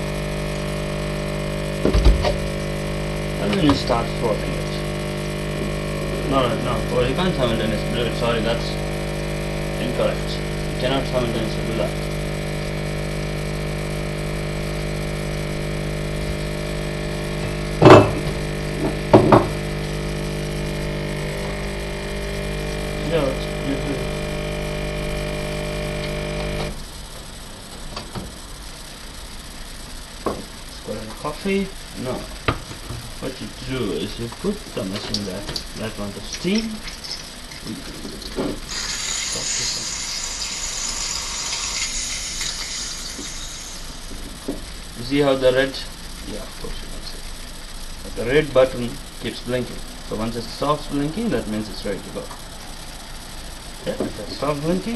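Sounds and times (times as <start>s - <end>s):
espresso machine hissing steam: 0.0s - 26.8s, 38.4s - 44.9s
steady electrical hum: 0.0s - 54.9s
knocks on a hard surface: 17.8s - 19.6s.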